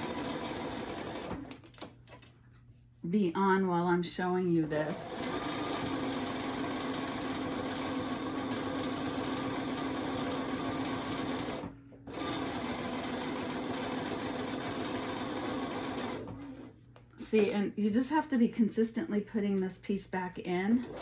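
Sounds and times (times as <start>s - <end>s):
sewing machine running: 0.0s - 1.6s, 4.6s - 16.7s, 20.8s - 21.0s.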